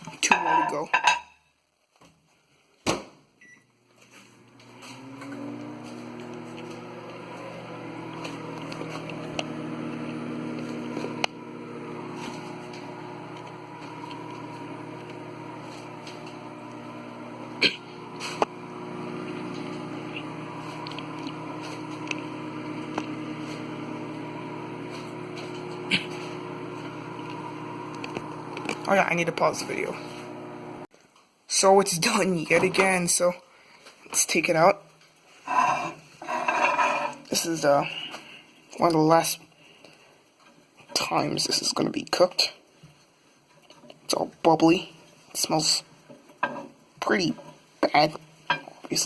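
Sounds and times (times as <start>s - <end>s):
microwave oven humming: 4.4s - 30.9s.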